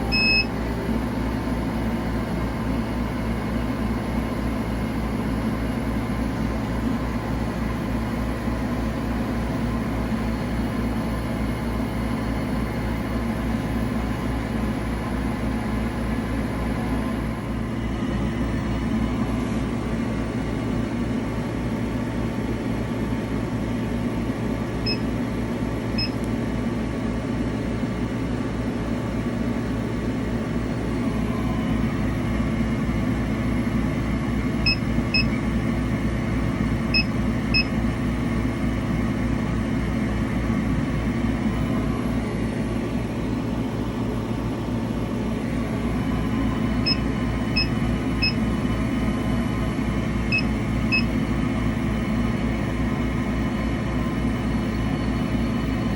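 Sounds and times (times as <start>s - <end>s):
short high beeps: 0.0s - 0.7s
machine humming and rattling: 0.0s - 55.9s.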